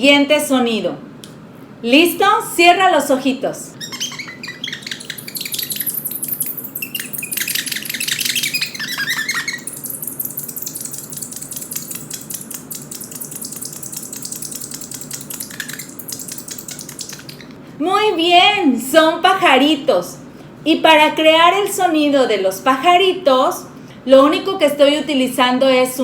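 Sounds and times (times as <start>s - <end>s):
foam squeaking on mirror: 3.8s - 17.6s.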